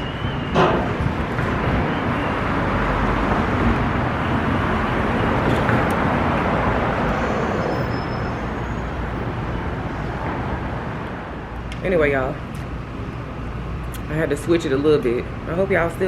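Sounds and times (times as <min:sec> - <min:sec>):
road traffic rushing hiss: 0:00.0 - 0:16.0.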